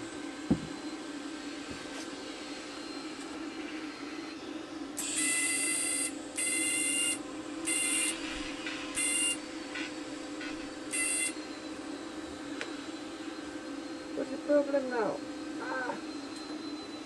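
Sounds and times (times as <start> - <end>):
steady low hum: 0.0 - 17.0
welder arc buzzing: 5.0 - 12.8.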